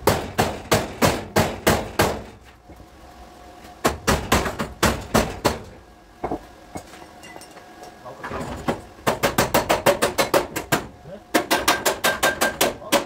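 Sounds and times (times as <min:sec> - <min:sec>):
hammer striking sheet metal: 0:11.4 - 0:13.0.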